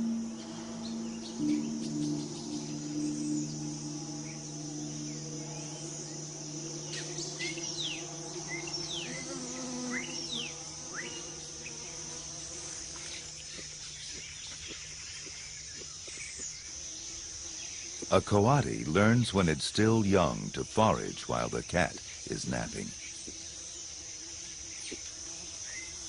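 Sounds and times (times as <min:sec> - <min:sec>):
low steady hum: 0:00.0 - 0:13.6
high-pitched insect drone: 0:00.0 - 0:26.0.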